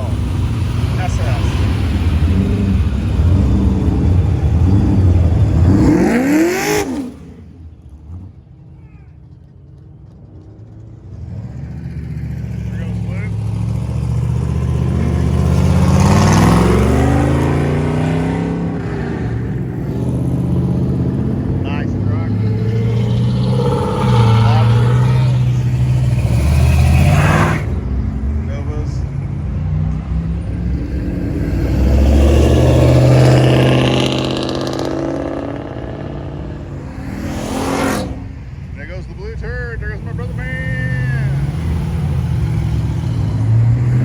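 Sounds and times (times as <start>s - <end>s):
car driving past: 0.0s - 44.0s
vehicle engine passing by: 0.0s - 44.0s.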